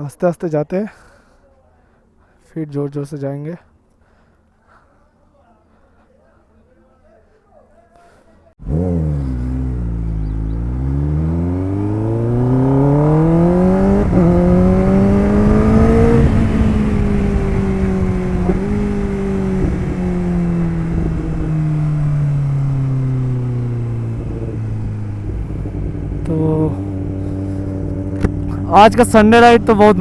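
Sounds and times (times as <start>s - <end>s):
motorcycle engine accelerating: 8.6s - 30.0s.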